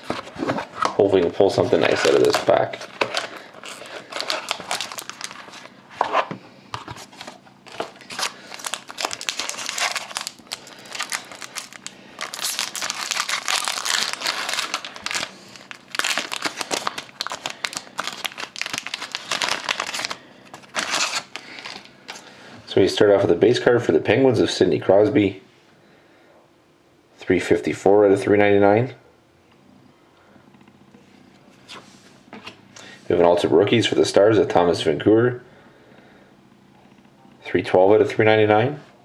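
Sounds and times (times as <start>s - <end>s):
wrapper tearing and crinkling: 1.8s - 5.7s, 7.3s - 21.9s.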